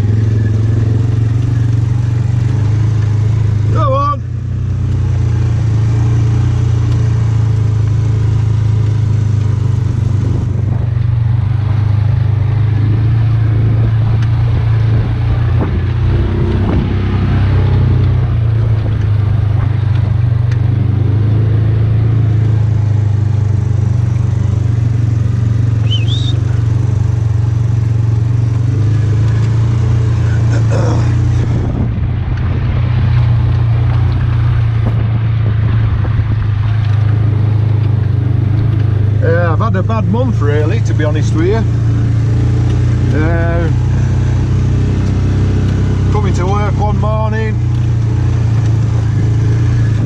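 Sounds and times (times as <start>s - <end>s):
utility vehicle engine droning: 0.0s - 50.0s
short high chirp: 25.8s - 26.5s.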